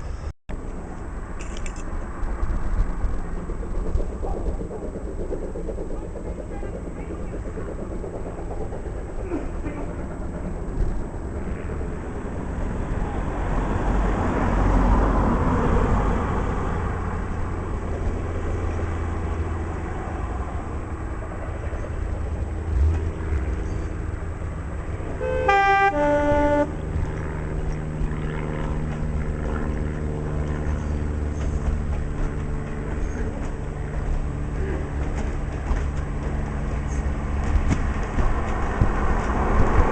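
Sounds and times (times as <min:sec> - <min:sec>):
diesel train rumbling: 0:00.0 - 0:39.9
two-tone train horn: 0:25.1 - 0:27.0.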